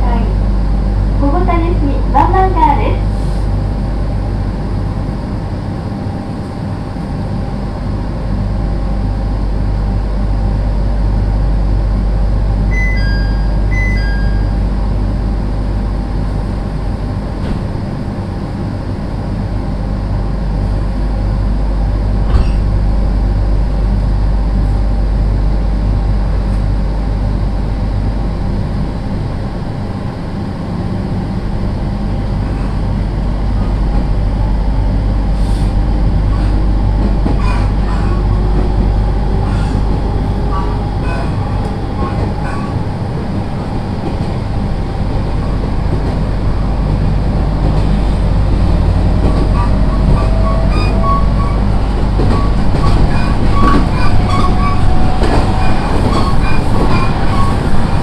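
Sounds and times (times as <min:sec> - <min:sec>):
low hum: 0:00.0 - 0:18.0, 0:31.4 - 0:58.0
train wheels rumbling on rails: 0:00.0 - 0:58.0
short high beeps: 0:12.7 - 0:14.6.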